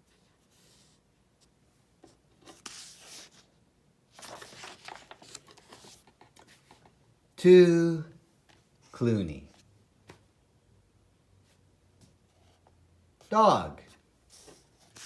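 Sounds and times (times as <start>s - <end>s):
paper pages rustling: 2.0s - 3.5s, 4.1s - 7.0s, 14.3s - 15.0s.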